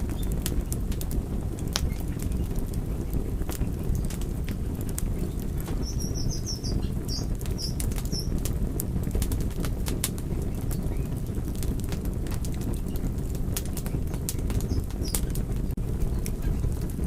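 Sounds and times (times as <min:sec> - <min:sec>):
low fire rumble: 0:00.0 - 0:17.0
wood fire crackling and popping: 0:00.0 - 0:17.0
bird chirping: 0:05.1 - 0:08.4, 0:14.1 - 0:15.3.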